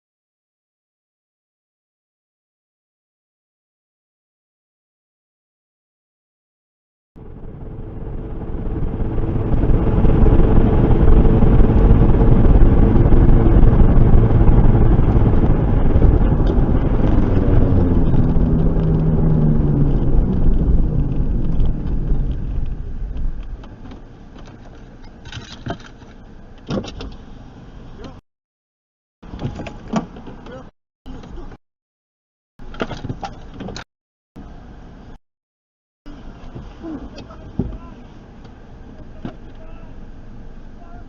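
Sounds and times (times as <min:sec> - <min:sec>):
vehicle engine and road noise: 0:07.2 - 0:28.2, 0:29.2 - 0:31.6, 0:32.6 - 0:35.2, 0:36.1 - 0:41.0.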